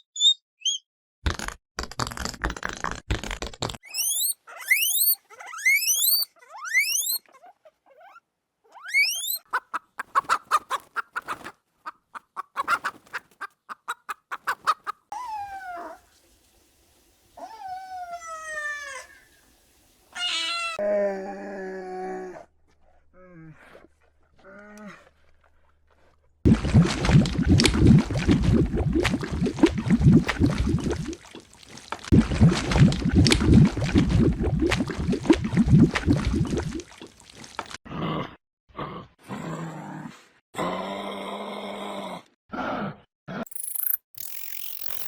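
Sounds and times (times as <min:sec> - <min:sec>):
animal chirps: 0:00.0 - 0:00.8, 0:03.8 - 0:07.4, 0:08.8 - 0:09.5, 0:43.5 - 0:45.0
animal cries: 0:20.1 - 0:20.8
fast clicks: 0:43.5 - 0:45.0.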